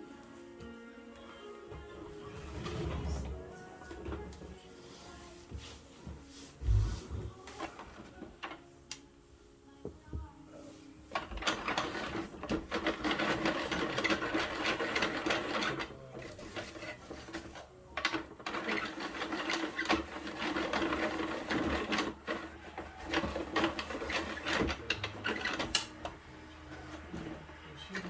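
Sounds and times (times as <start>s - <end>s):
plastic toy truck rattling and clicking: 11.1s - 27.6s.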